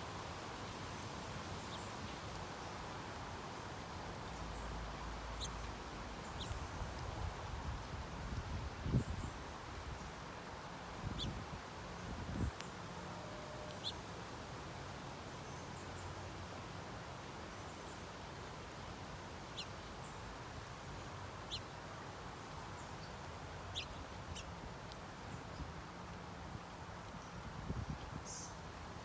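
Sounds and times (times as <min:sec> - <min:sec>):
steady background hiss: 0:00.0 - 0:29.0
small birds chirping: 0:04.1 - 0:10.3, 0:11.0 - 0:12.8, 0:19.5 - 0:20.3, 0:21.0 - 0:25.8.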